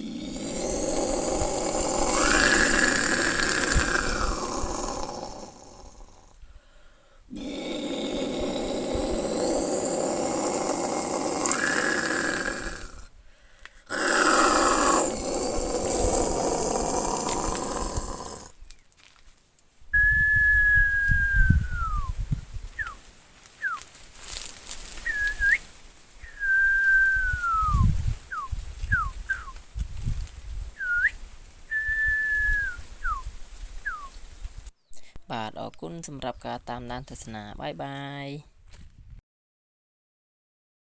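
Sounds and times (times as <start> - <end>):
person imitating animal calls: 0.0 - 6.4, 7.3 - 13.1, 13.9 - 18.6
high whistled cries sliding down: 25.0 - 29.6, 30.8 - 34.2.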